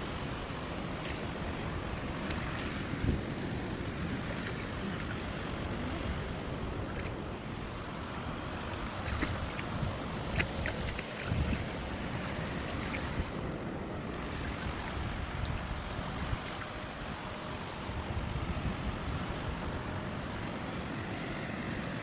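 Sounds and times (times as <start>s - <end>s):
sea noise: 0.0s - 22.0s
wind rumbling on microphone: 0.0s - 22.0s.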